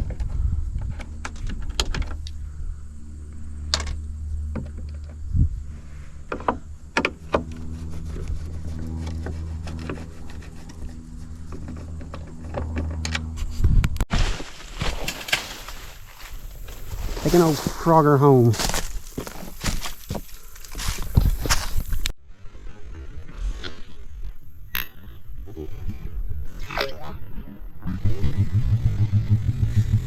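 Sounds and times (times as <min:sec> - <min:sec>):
motor humming: 0:27.8 - 0:30.0.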